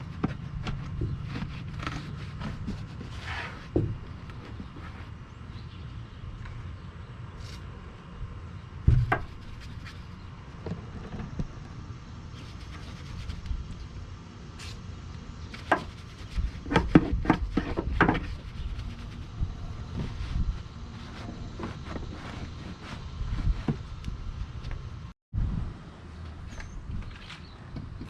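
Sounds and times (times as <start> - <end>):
thump: 8.9 - 9.3.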